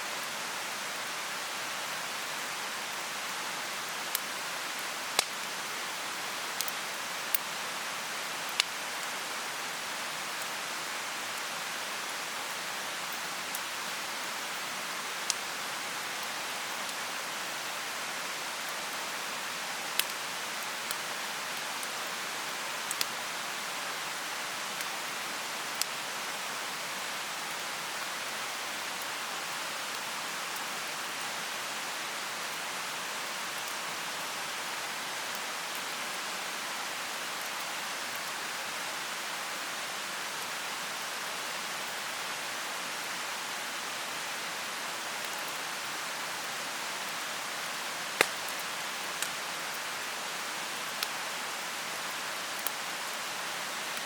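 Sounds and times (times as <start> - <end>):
bonfire crackling and popping: 4.8 - 5.4, 48.1 - 49.4.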